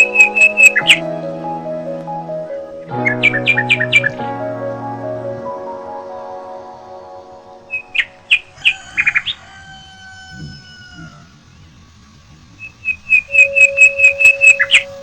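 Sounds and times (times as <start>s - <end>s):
bird trill: 0.0s - 1.0s, 3.0s - 4.2s, 7.7s - 11.0s, 12.6s - 15.0s
background music: 0.0s - 9.3s, 13.3s - 15.0s
birds chirping: 0.0s - 15.0s.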